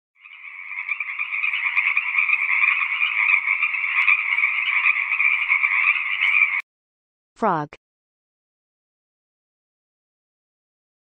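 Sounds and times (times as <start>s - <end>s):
frogs calling: 0.2s - 6.6s.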